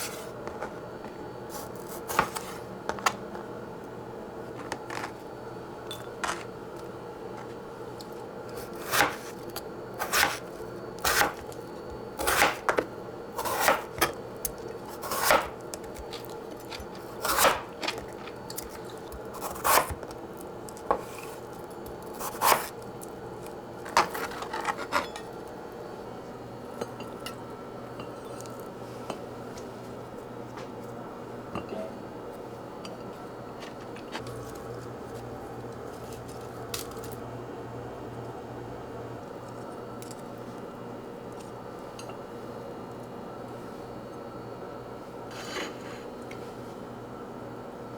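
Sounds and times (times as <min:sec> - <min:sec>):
dishes and utensils clinking: 0:32.9 - 0:34.4.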